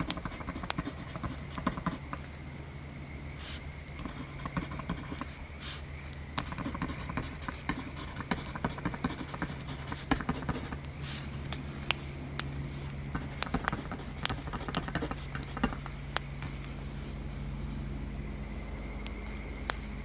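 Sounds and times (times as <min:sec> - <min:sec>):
steady low rumble: 0:00.0 - 0:20.0
sharp pops and snaps: 0:06.0 - 0:16.8, 0:18.7 - 0:19.9.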